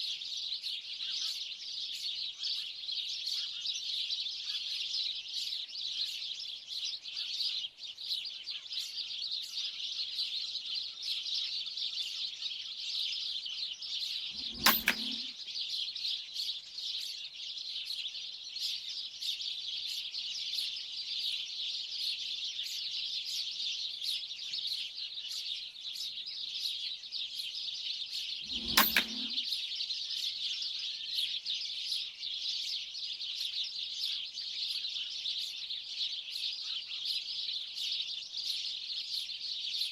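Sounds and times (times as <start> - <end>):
flock of birds chirping: 0.1 - 13.0, 30.1 - 39.9.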